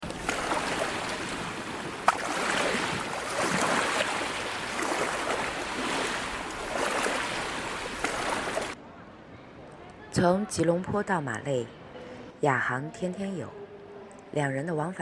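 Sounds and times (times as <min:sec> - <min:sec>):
sea water rushing and splashing: 0:00.0 - 0:08.8.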